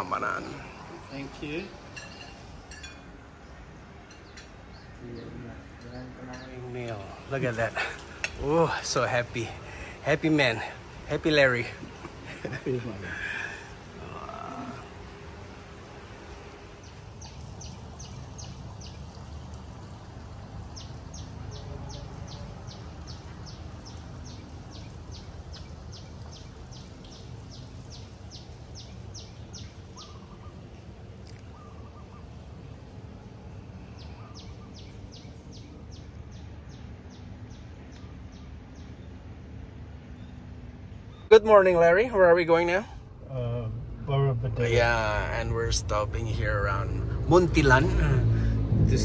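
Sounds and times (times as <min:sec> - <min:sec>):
steady low rumble: 0:43.0 - 0:49.0.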